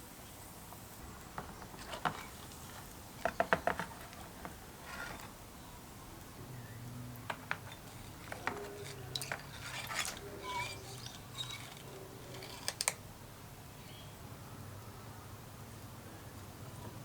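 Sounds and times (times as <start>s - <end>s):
metal scrape: 3.9s - 5.4s, 7.3s - 13.0s
small metal parts clicking: 7.3s - 13.0s.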